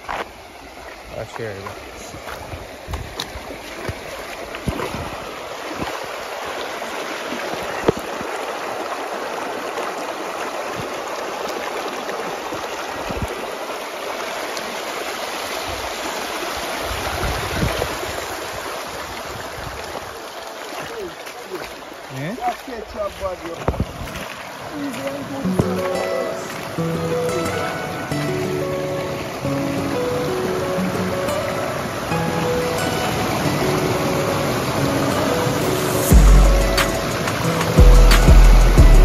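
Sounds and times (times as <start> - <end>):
river water rushing over rocks: 0.0 - 39.0.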